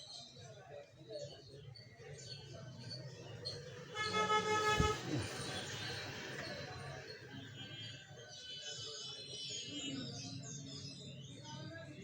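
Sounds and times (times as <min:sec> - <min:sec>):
vehicle horn toot: 0:03.9 - 0:05.2.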